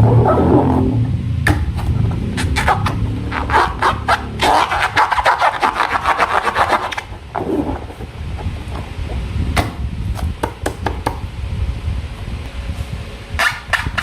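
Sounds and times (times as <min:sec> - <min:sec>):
low rumble: 0:00.0 - 0:10.4, 0:11.2 - 0:13.4
quick rubbing strokes: 0:01.8 - 0:08.1.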